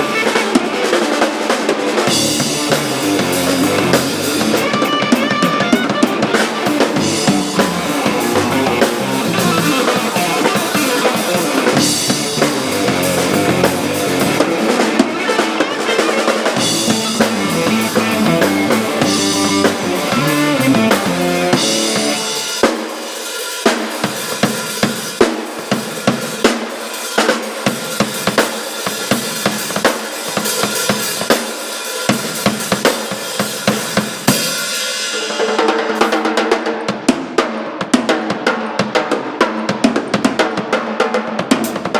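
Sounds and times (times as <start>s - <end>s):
drum kit: 0.0s - 41.9s
rock band playing: 0.0s - 41.9s
low pitched instruments: 6.1s - 14.5s, 16.6s - 22.5s.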